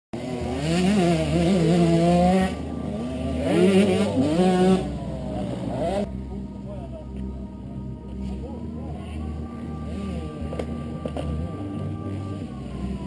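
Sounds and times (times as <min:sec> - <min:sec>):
motocross engine revving: 0:00.2 - 0:06.1.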